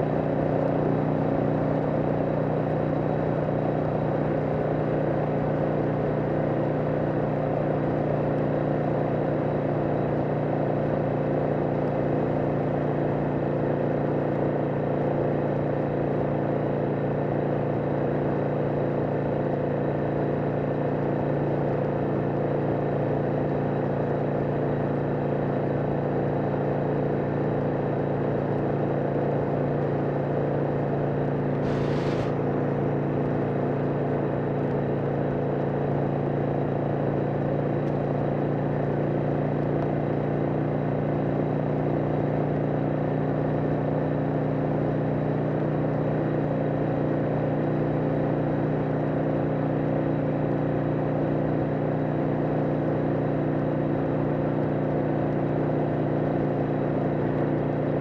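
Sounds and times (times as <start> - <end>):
motorcycle engine cruising: 31.2 - 38.6
brief hiss: 31.6 - 32.4.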